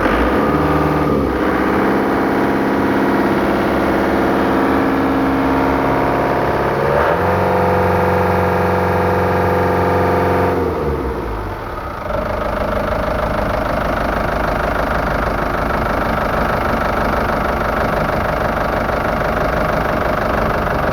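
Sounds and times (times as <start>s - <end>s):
boat engine idling: 11.4s - 20.9s.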